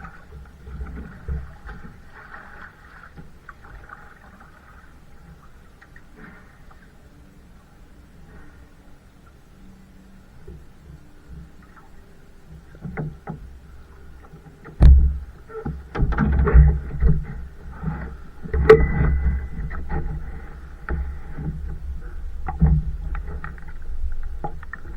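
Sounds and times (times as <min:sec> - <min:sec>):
paddle splashes: 0:00.0 - 0:07.1, 0:10.6 - 0:24.9
water sloshing: 0:00.0 - 0:07.1, 0:10.6 - 0:24.9
sharp knocks: 0:14.8 - 0:17.4, 0:18.4 - 0:21.8.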